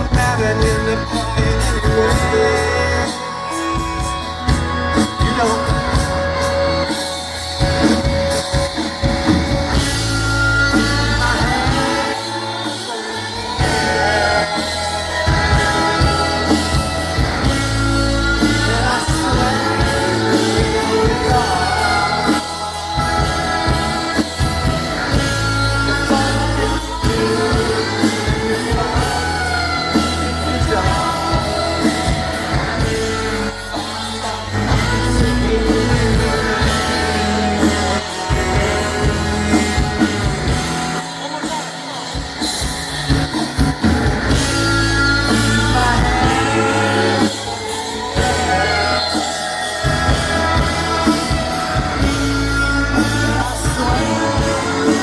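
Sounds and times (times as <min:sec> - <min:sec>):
heavy bass: 0:00.0 - 0:55.0
live rock band playing: 0:00.0 - 0:55.0
person singing lead vocal: 0:00.0 - 0:55.0.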